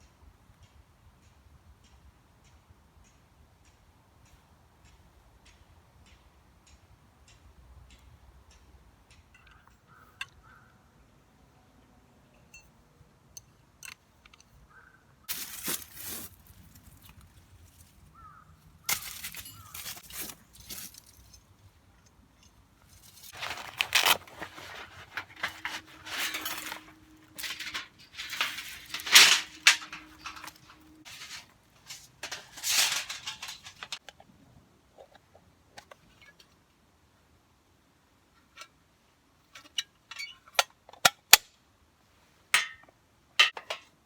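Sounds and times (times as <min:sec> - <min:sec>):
rustling and crunching: 0:15.3 - 0:34.0.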